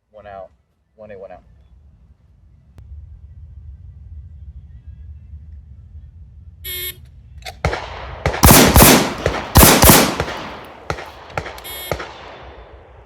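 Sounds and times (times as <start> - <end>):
loud gunshots: 7.6 - 13.0
shot timer beep: 11.6 - 12.0.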